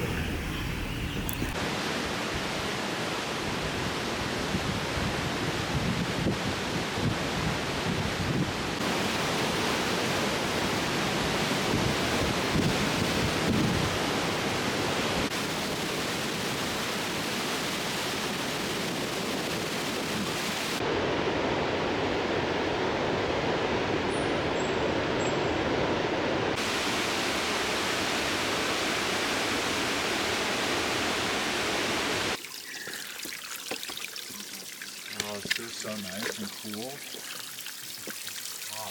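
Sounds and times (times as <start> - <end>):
waterfall roaring: 25.8 - 33.5.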